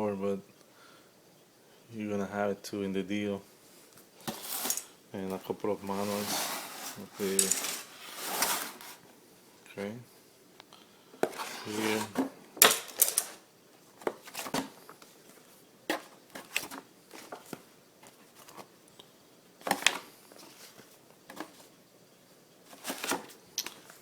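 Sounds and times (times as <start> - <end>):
papers and items handled: 3.9 - 9.1, 11.2 - 18.8, 19.6 - 21.8, 22.6 - 24.0.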